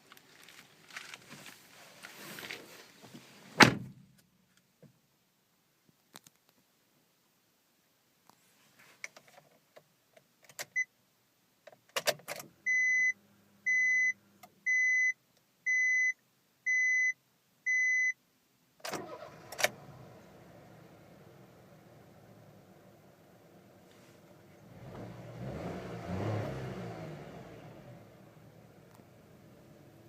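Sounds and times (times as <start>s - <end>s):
car door shutting: 3.6s - 4.0s
dashboard warning chime beeping: 12.7s - 18.2s
car engine starting and idling: 18.8s - 30.0s.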